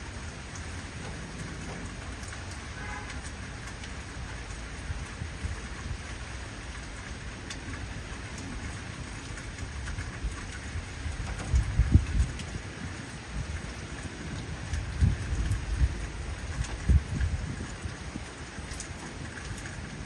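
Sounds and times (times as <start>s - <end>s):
heavy rain: 0.0s - 20.0s
thunder rumbling: 8.4s - 20.0s.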